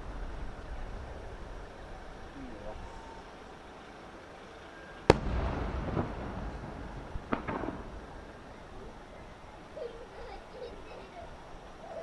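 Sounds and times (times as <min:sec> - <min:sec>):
rolling rumble: 0:00.0 - 0:12.0
fireworks bangs: 0:05.1 - 0:08.8.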